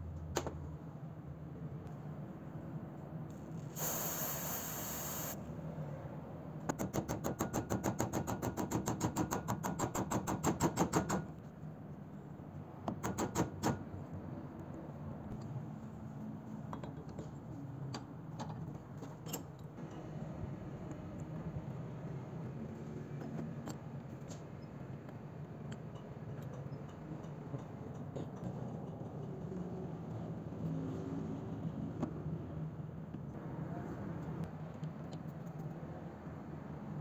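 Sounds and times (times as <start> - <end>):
aerosol spray hiss: 3.8 - 5.4.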